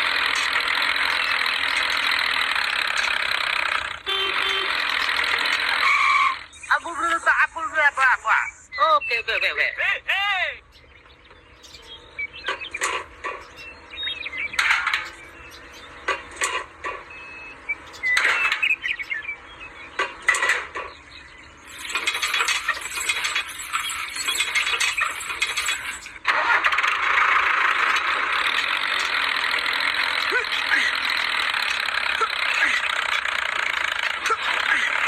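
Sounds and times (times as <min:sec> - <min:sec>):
small motor whirring: 0:00.0 - 0:06.6, 0:26.8 - 0:35.0
clicks and knocks: 0:14.6 - 0:15.3, 0:20.0 - 0:21.0.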